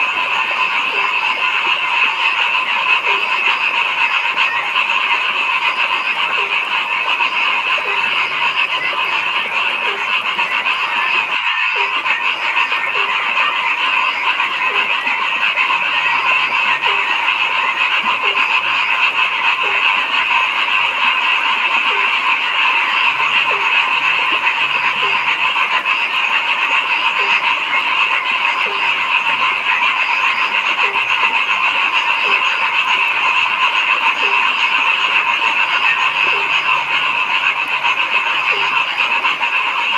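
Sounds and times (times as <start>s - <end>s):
frogs chorus: 0.0s - 39.9s
low frog call: 0.0s - 39.9s.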